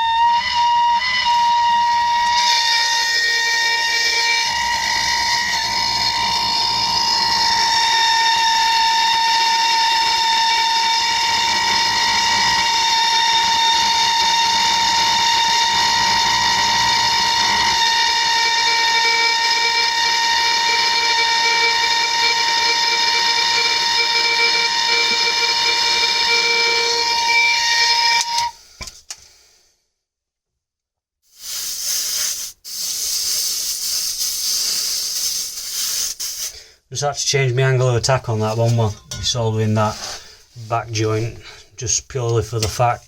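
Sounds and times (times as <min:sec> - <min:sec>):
blowtorch flame hissing: 0:31.3 - 0:36.6.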